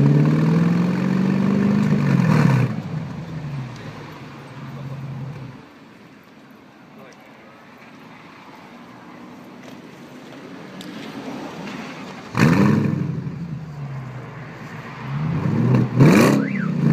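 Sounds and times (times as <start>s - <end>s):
car exhaust revving: 0.0s - 3.8s, 12.3s - 13.8s, 15.1s - 16.9s.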